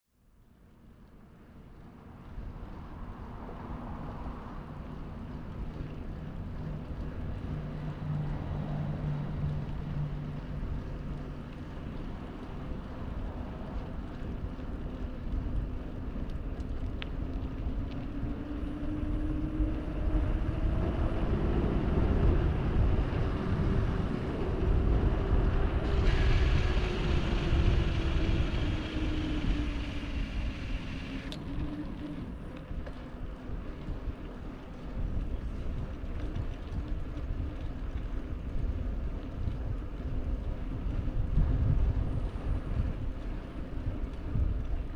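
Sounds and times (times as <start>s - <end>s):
wind rumbling on microphone: 0.4s - 44.9s
road traffic: 1.2s - 34.6s
vehicle engine passing: 18.8s - 32.4s
hiss: 25.8s - 31.3s.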